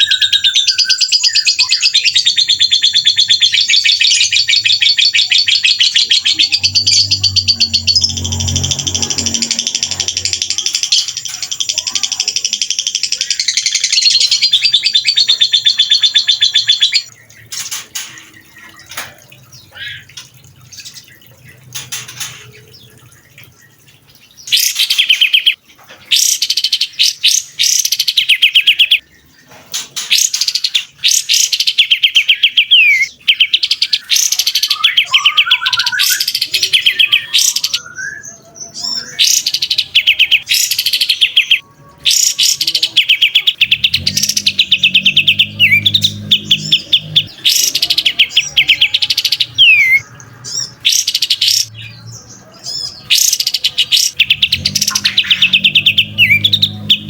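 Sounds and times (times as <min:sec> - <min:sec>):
songbird chattering trills: 0:00.0 - 0:23.2, 0:24.4 - 0:57.0
low hum: 0:06.1 - 0:11.2.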